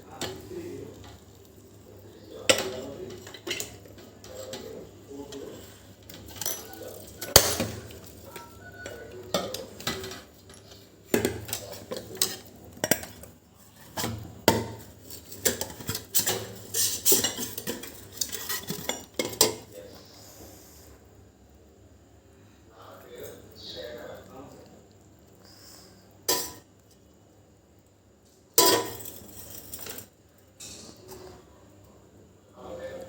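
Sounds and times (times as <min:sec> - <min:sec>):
metal kitchenware knocking and scraping: 0:06.1 - 0:13.2, 0:13.8 - 0:19.6, 0:28.6 - 0:30.0.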